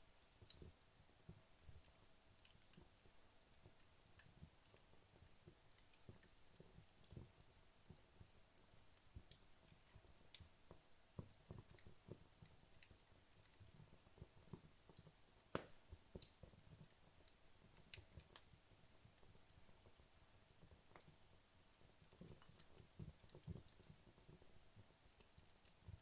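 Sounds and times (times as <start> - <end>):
fireplace logs crackling: 0.2 - 26.0
sharp wood snap: 15.5 - 15.8.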